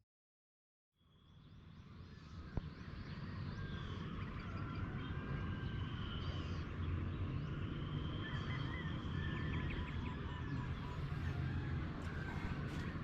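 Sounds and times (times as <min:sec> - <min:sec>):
faint bird calls: 0:08.1 - 0:13.0.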